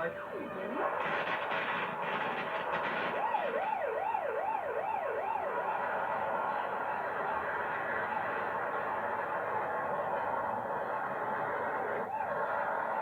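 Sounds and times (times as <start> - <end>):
warbling alarm siren: 0.0 - 13.0
steady rushing noise: 0.1 - 3.4.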